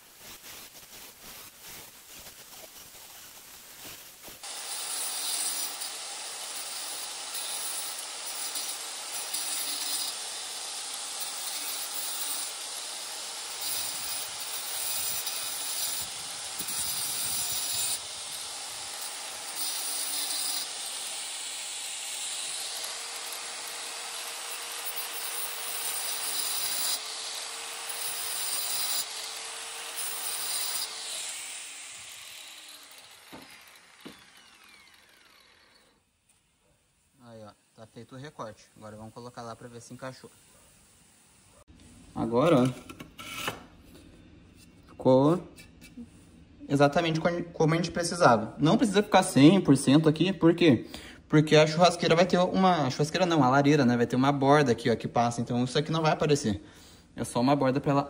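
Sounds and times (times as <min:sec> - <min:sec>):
power tool cutting stone: 0:04.4 - 0:36.0.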